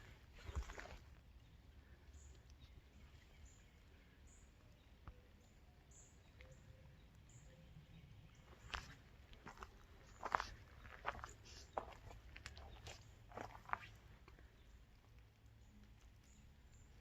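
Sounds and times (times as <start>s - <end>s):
footstep crunch: 0.0s - 1.2s, 8.4s - 14.5s.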